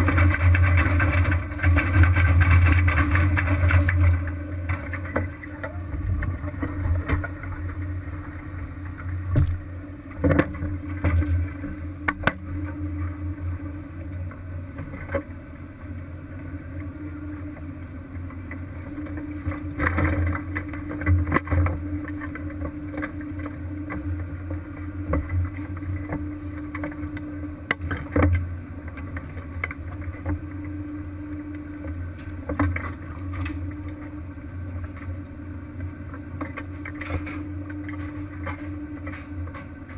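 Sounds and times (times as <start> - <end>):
boat engine droning: 0.0 - 39.9
constant hum: 0.0 - 39.9.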